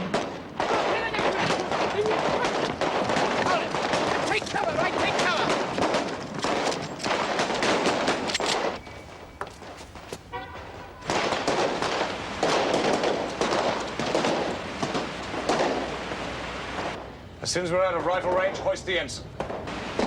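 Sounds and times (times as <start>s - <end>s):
rapid gunfire volleys: 0.0s - 8.8s, 10.6s - 17.0s.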